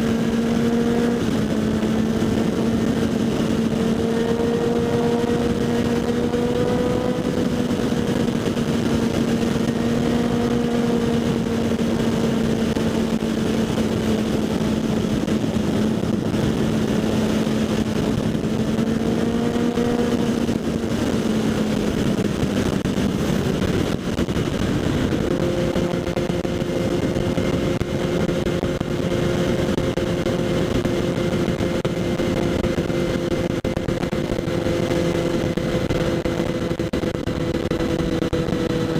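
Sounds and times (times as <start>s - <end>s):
motorcycle engine: 0.0s - 38.9s
wind rush on microphone: 0.0s - 38.9s.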